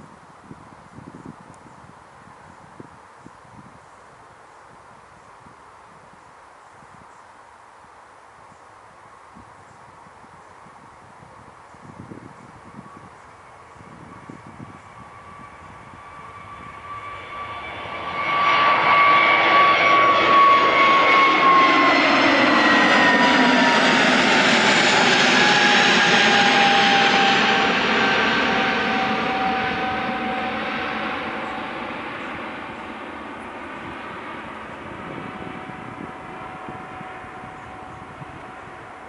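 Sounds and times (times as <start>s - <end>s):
high jet whine falling in pitch: 12.9s - 39.0s
jet roar passing by: 14.6s - 39.0s.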